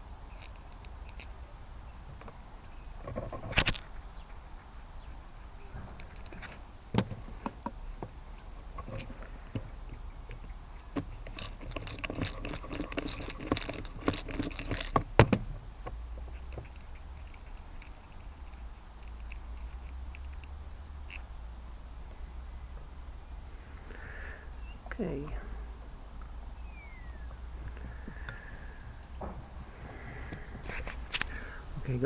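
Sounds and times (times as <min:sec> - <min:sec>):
metal parts clinking and scraping: 0:08.7 - 0:15.2
metal parts clicking and tapping: 0:08.7 - 0:20.5.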